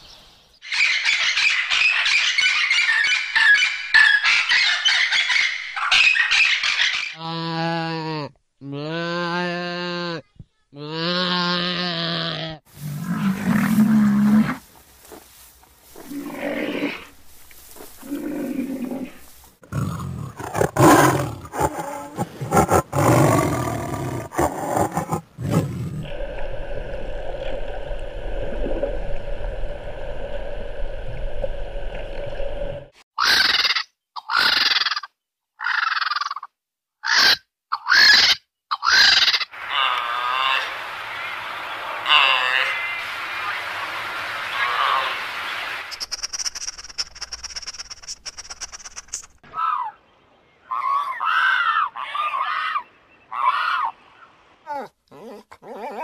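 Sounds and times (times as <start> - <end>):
animal growling roars: 18.0 - 26.2
short sharp animal calls: 45.9 - 49.9.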